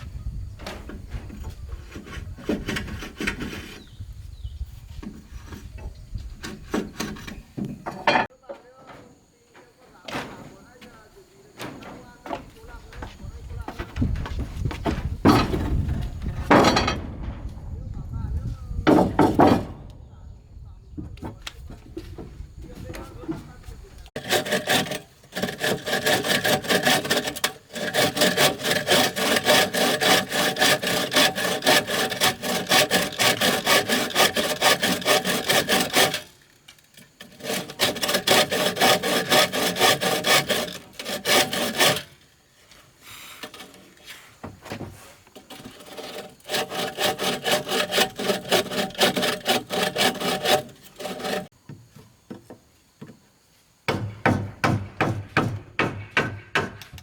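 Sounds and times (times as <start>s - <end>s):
hand saw cutting wood: 1.0s - 4.0s, 6.4s - 8.0s, 24.1s - 42.3s, 43.1s - 51.6s.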